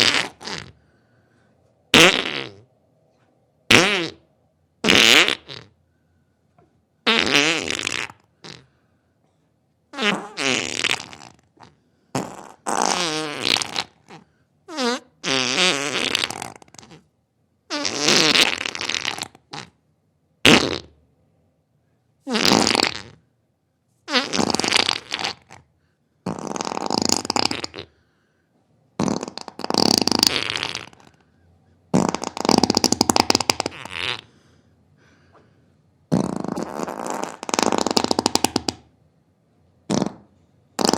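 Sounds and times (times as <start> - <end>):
farts: 0.0 - 0.8, 1.9 - 2.7, 3.7 - 5.8, 7.0 - 8.7, 9.9 - 17.1, 17.7 - 19.8, 20.4 - 21.0, 22.2 - 23.2, 24.1 - 28.0, 29.0 - 31.2, 31.9 - 34.3, 36.1 - 38.9, 39.8 - 40.9.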